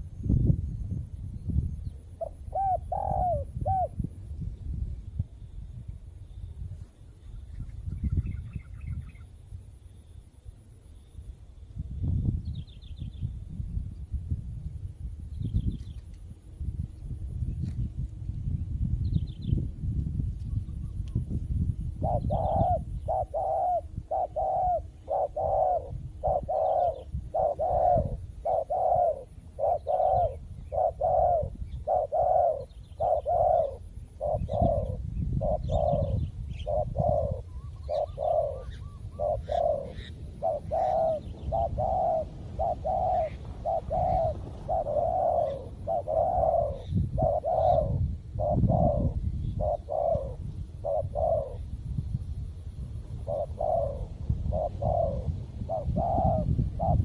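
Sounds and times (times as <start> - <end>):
doves cooing: 2.2 - 4.0, 22.0 - 51.7, 53.1 - 57.0
faint small-bird chirps: 15.3 - 16.2.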